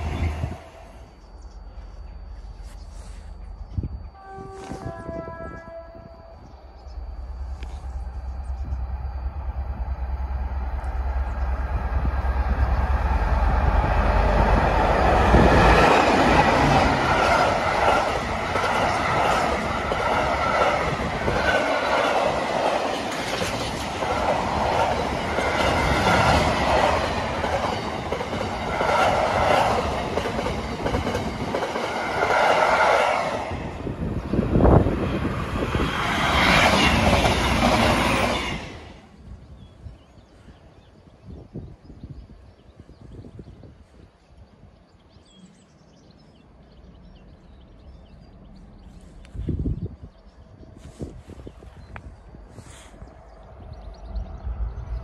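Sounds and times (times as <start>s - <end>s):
locomotive engine rumble: 5.1s - 31.8s.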